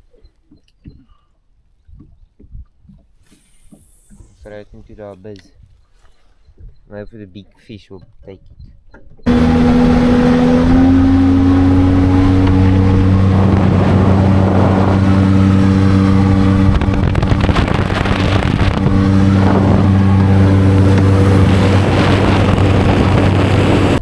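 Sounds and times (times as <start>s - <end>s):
motorboat engine running: 9.3s - 24.0s.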